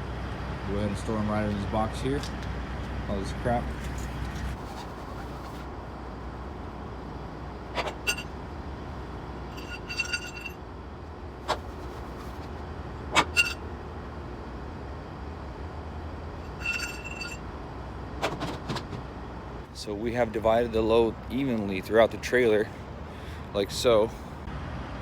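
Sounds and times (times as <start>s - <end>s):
steady low hum: 0.0s - 25.0s
metallic clinks and knocks: 9.6s - 10.6s, 16.5s - 17.4s.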